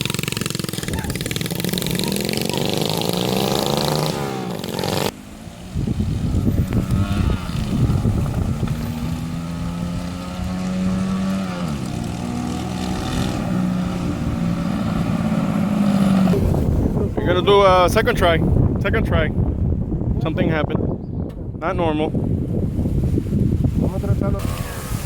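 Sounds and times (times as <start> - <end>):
go-kart engine running: 0.0 - 17.4.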